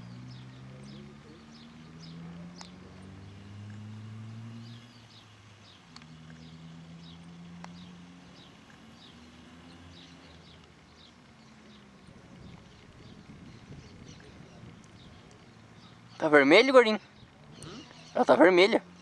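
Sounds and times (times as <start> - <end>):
low droning hum: 0.0 - 3.7
birds chirping: 0.0 - 19.0.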